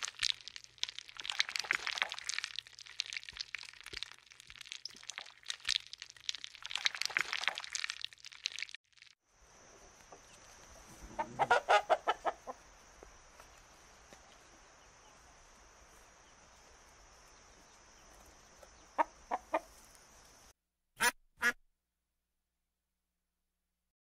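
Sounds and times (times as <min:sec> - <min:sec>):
poultry calling: 0:10.8 - 0:12.7.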